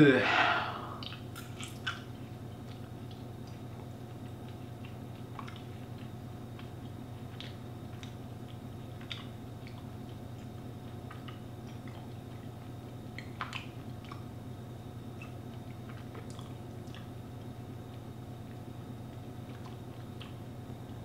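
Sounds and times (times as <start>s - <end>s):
steady low hum: 0.0s - 21.0s
person chewing: 0.4s - 2.0s, 2.6s - 6.7s
mouth clicks and smacks: 1.0s - 2.0s, 15.2s - 17.1s.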